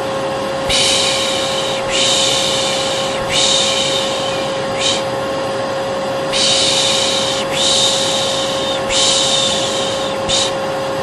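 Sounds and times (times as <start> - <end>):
vacuum cleaner running: 0.0 - 11.0
person shushing: 0.7 - 5.1, 6.3 - 10.6.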